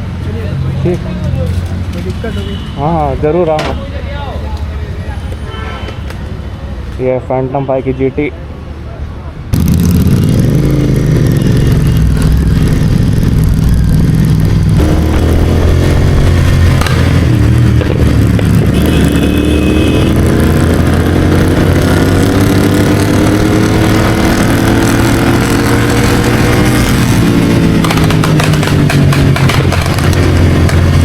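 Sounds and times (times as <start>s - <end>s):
motorcycle engine accelerating: 9.5s - 31.0s.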